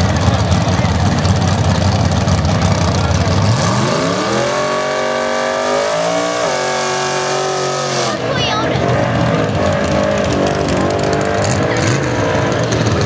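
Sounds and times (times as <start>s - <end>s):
drag racing car engine: 0.0s - 13.0s.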